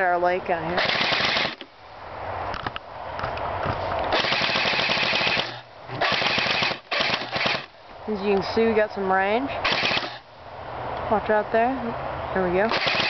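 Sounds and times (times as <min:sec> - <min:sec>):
toy guns firing full auto: 0:00.8 - 0:01.6, 0:04.1 - 0:07.7, 0:09.6 - 0:10.2, 0:12.7 - 0:13.0.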